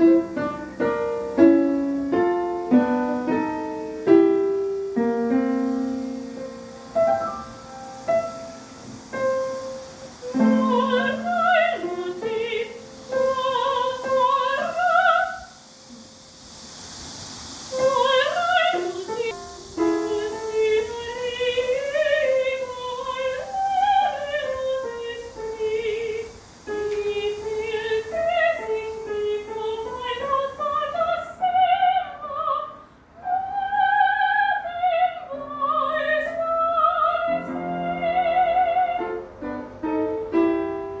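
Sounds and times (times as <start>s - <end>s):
faint steady hiss: 0.0s - 41.0s
woman singing operatically: 10.3s - 15.5s, 17.8s - 19.3s, 20.1s - 39.3s.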